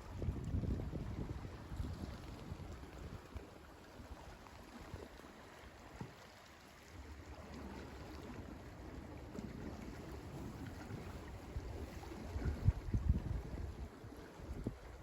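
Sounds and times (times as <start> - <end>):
wind rumbling on microphone: 0.0 - 5.2, 9.3 - 15.0
gentle water at shore: 0.0 - 15.0.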